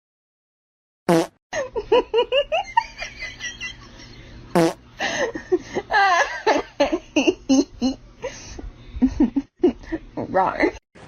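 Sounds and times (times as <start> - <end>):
fart-like sounds: 1.1 - 1.4, 4.5 - 4.8.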